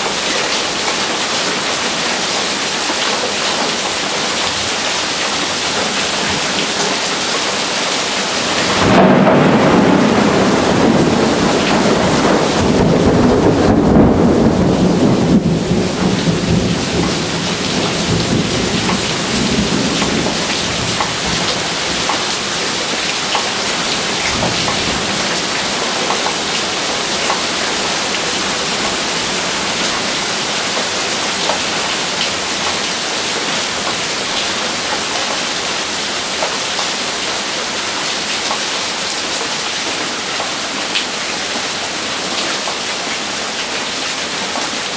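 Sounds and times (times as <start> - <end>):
heavy rain falling: 0.0 - 44.9
thunder rumbling: 8.4 - 22.3.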